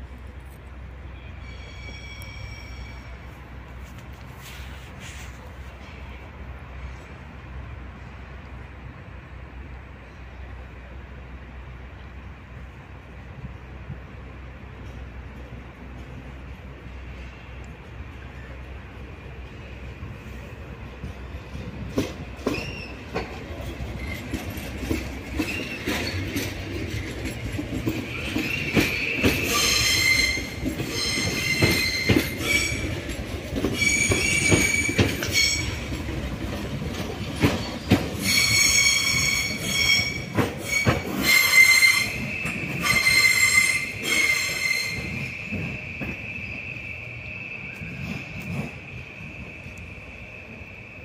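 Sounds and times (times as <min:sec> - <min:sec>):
train wheels squealing: 0:01.0 - 0:03.5, 0:14.9 - 0:51.0
wheels clacking over rail joints: 0:21.0 - 0:46.3.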